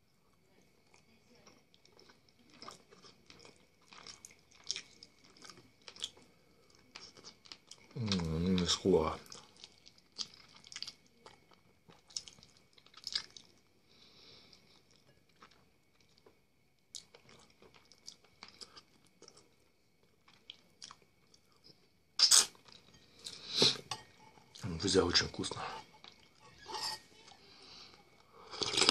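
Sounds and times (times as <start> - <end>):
crunching clicks and wet smacks: 0.9 - 13.7, 14.5 - 22.8.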